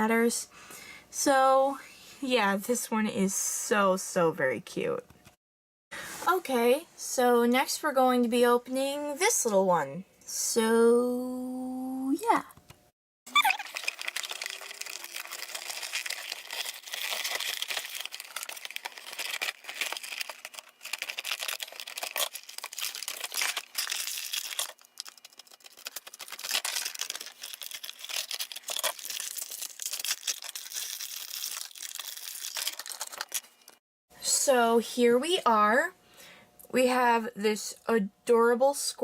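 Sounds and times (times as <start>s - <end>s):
packaging crinkling and tearing: 13.3s - 33.8s.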